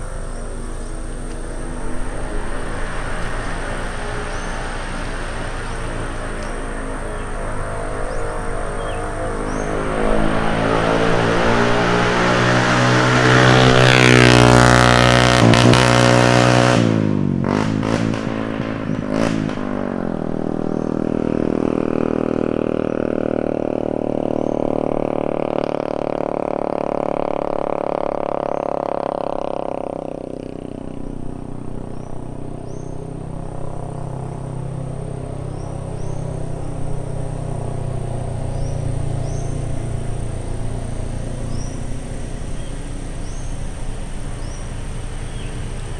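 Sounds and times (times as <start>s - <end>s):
vehicle engine passing: 0.0s - 45.9s
vehicle road noise: 0.0s - 45.9s.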